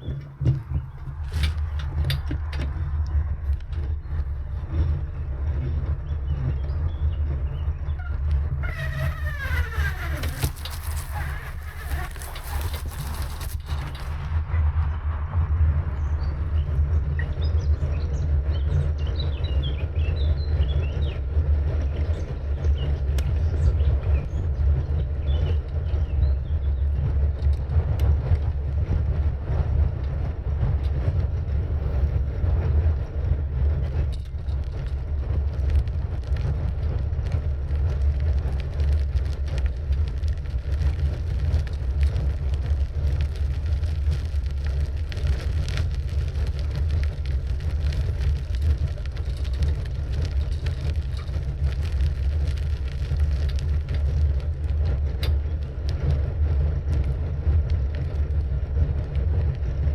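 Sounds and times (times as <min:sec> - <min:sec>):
bicycle clicks and rattles: 0:00.0 - 0:02.7, 0:08.8 - 0:14.2, 0:32.8 - 0:56.2
road noise: 0:00.0 - 0:05.5
wind rushing over microphone: 0:00.0 - 0:59.9.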